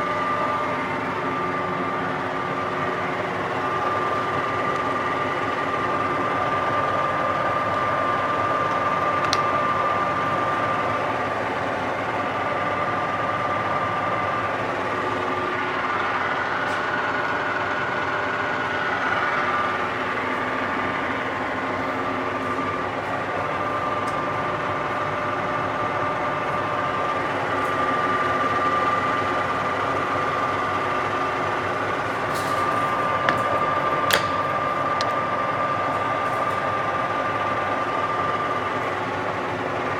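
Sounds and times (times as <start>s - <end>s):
lathe gear whine: 0.0s - 39.9s.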